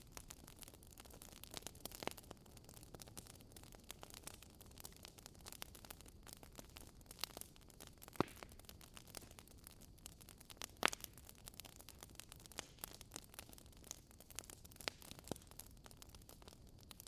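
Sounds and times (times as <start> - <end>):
burning logs crackling: 0.0 - 17.0
fire popping and snapping: 0.0 - 17.0
soft fire hiss: 0.0 - 17.0.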